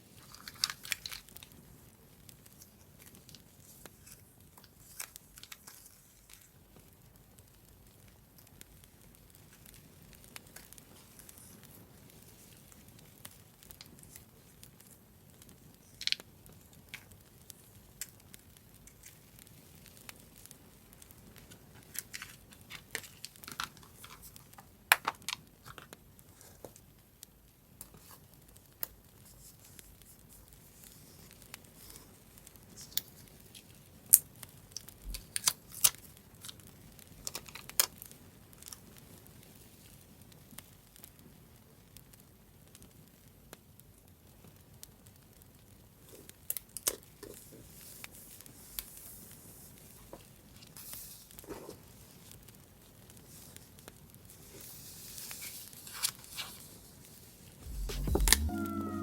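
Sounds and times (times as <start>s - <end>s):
faint steady hiss: 0.0s - 59.0s
paper tearing and crinkling: 0.2s - 1.2s.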